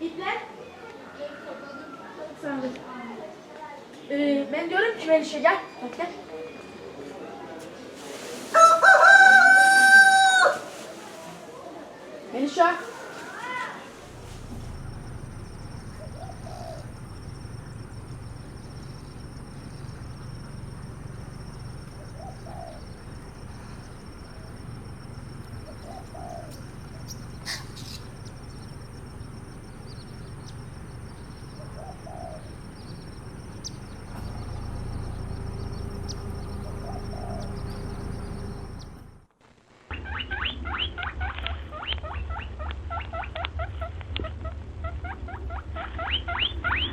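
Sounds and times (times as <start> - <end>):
steady low rumble: 14.0 - 39.3
pigeon cooing: 14.1 - 39.1.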